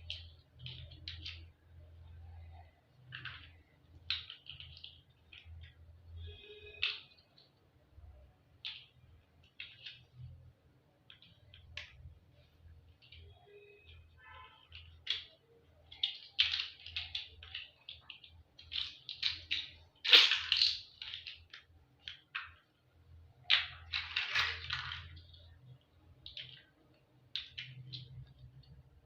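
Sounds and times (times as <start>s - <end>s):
toy blocks clicking: 0.0s - 2.0s, 2.9s - 7.6s, 8.4s - 10.3s, 11.0s - 29.0s.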